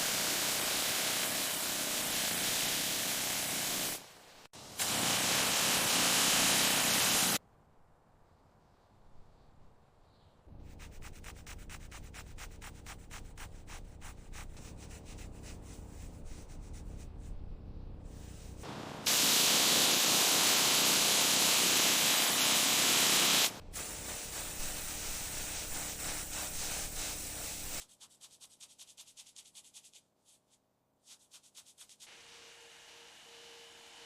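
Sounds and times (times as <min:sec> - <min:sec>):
loud hiss: 0:00.0 - 0:07.4, 0:18.5 - 0:27.8
rough rubbing noise: 0:10.6 - 0:18.7.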